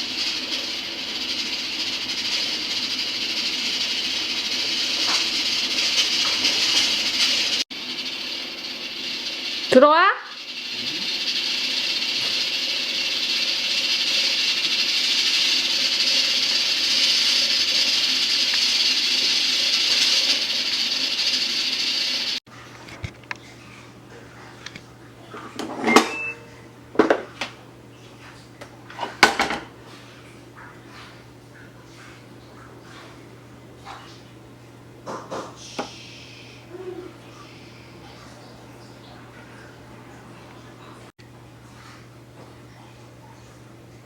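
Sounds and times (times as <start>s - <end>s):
steady rushing hiss: 0.0s - 22.4s
dishes and utensils clinking: 25.6s - 27.1s.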